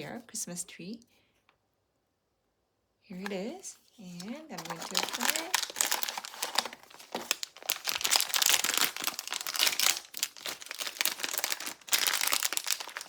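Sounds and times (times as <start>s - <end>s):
packaging crinkling and rustling: 3.2s - 13.0s.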